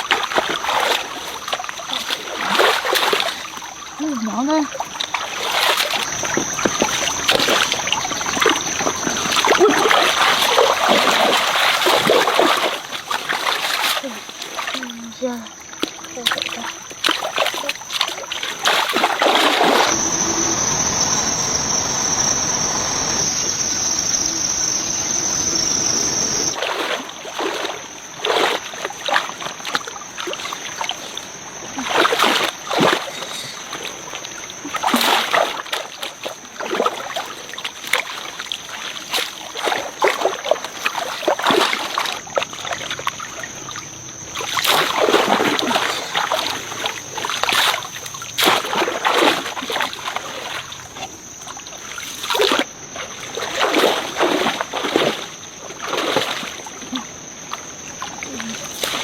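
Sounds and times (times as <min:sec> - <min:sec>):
water running: 0:00.0 - 0:59.0
water splashing and sloshing: 0:00.0 - 0:59.0
steady high tone: 0:19.6 - 0:26.6.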